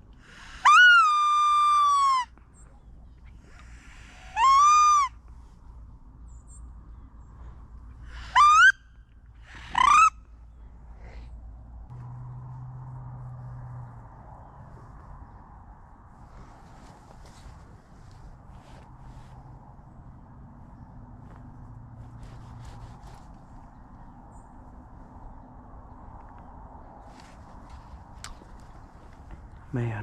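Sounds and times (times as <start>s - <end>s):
wood duck whistled calls: 4.4s - 5.1s, 8.2s - 8.9s, 9.5s - 10.2s
faint low hum: 10.1s - 30.0s.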